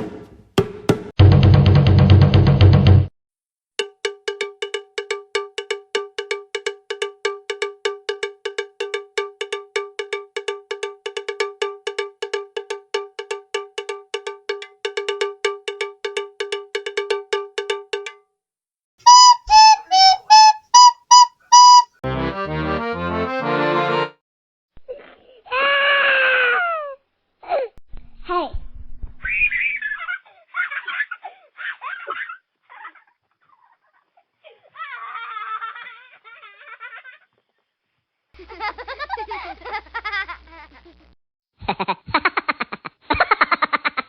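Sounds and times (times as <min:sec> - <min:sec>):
rapid bell-like strikes: 0:03.8 - 0:18.2
short high beeps: 0:19.1 - 0:21.9.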